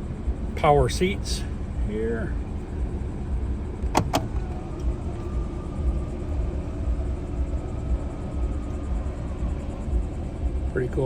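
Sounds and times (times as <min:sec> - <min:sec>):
power seat motor whine: 0:03.5 - 0:10.6.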